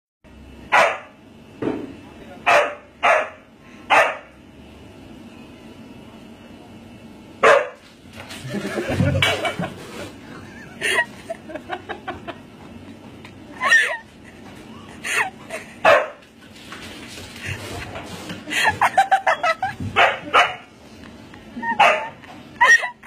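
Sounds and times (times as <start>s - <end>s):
dog barking: 0.7s - 1.1s, 2.5s - 4.3s, 7.4s - 7.8s, 15.8s - 16.2s, 20.0s - 20.7s, 21.8s - 22.2s.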